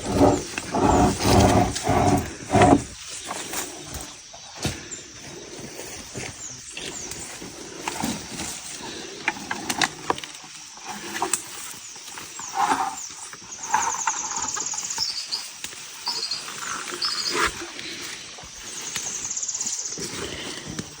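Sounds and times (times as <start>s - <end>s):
birds chirping: 0.0s - 3.0s.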